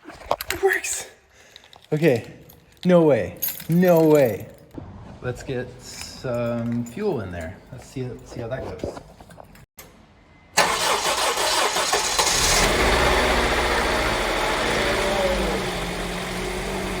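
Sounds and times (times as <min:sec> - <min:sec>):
car engine starting and idling: 0:10.6 - 0:17.0.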